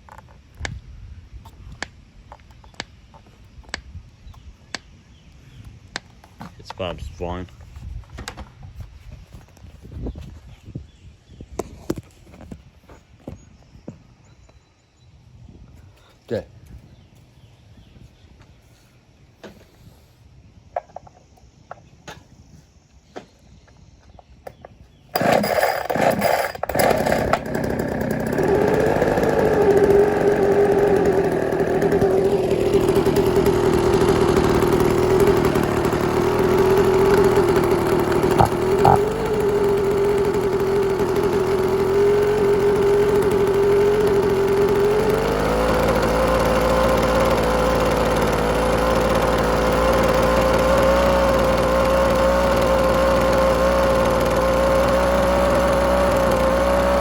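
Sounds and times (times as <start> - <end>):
leaf blower engine running: 25.2 - 57.0.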